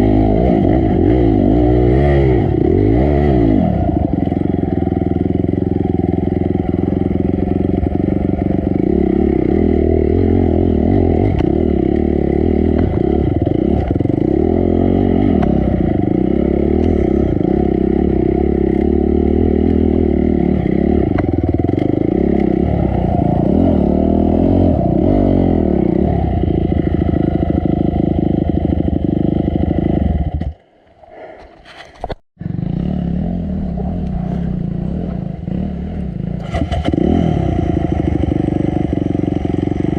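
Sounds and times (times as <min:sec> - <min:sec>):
dirt bike engine revving: 0:00.0 - 0:30.5, 0:32.4 - 0:39.9
clatter: 0:16.6 - 0:17.8.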